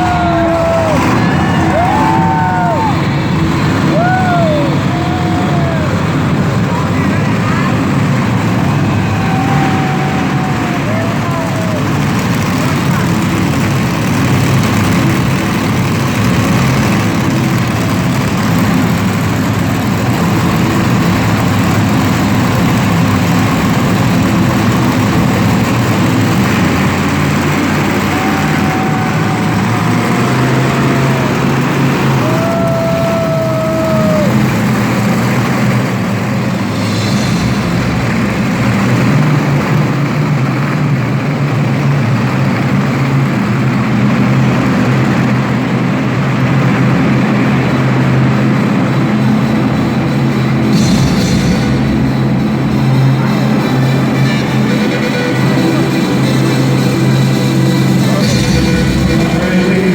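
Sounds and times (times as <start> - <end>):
monster truck engines running: 0.0 - 59.9.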